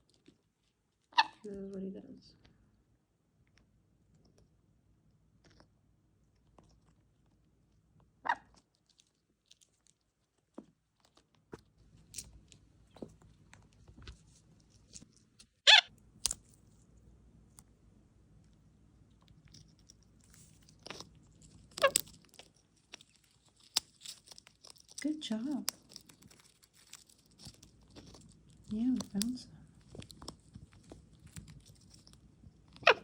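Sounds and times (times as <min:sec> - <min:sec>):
pine cone scales cracking: 0:16.2 - 0:16.6, 0:19.3 - 0:33.0.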